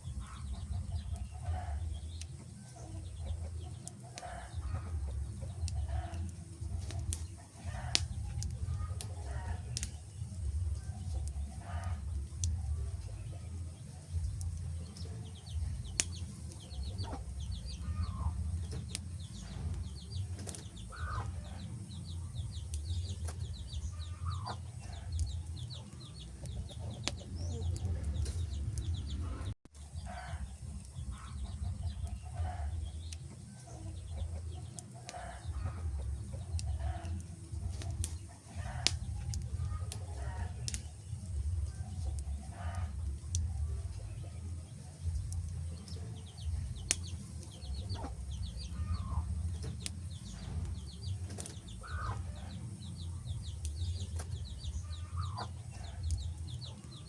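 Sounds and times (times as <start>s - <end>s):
wood fire crackling and popping: 0.0s - 29.5s, 30.3s - 57.0s
low rumble: 4.5s - 33.1s, 35.4s - 56.6s
bird-like calls: 33.9s - 57.0s.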